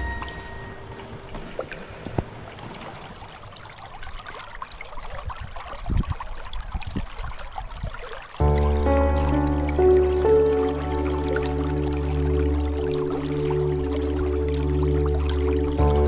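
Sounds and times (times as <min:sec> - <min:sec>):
small water drips: 0:00.0 - 0:16.0
soft low splashes: 0:00.0 - 0:16.0
water trickling and splashing: 0:00.0 - 0:16.0.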